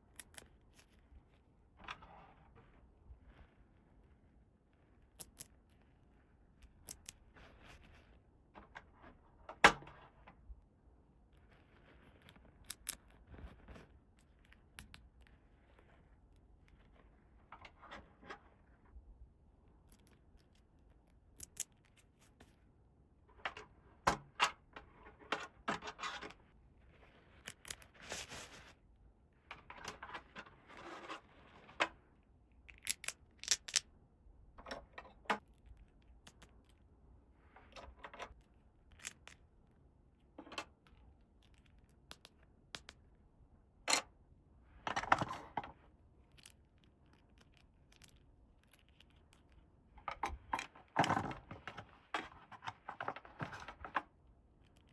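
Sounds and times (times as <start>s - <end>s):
plastic toy pieces clicking: 32.7s - 33.8s, 38.9s - 39.4s.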